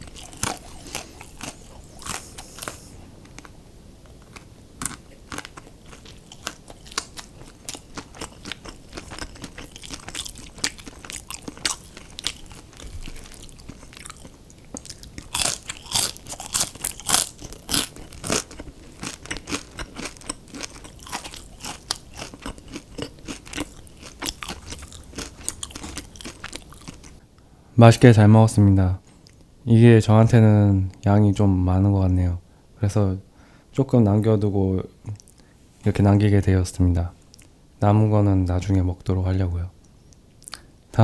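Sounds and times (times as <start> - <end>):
chewing crispy fried food: 0.0 - 3.5, 4.2 - 27.2.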